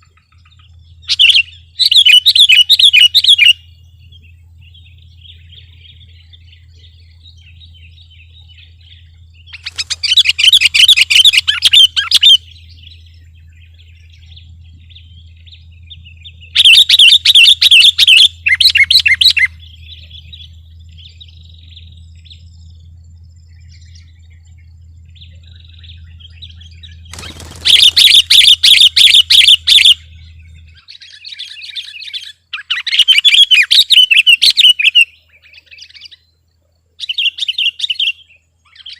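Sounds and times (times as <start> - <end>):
bulbul singing: 0.0 - 38.9
low steady hum: 0.0 - 38.9.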